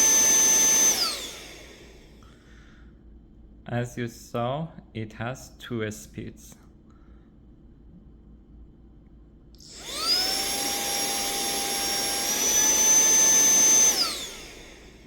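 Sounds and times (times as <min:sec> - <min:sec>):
handheld vacuum cleaner motor whine: 0:00.0 - 0:02.2, 0:09.6 - 0:15.0.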